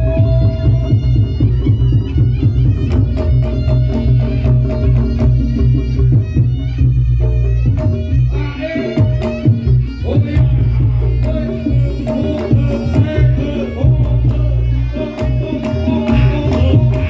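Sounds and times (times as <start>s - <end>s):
fast dense drumming: 0.0s - 17.0s.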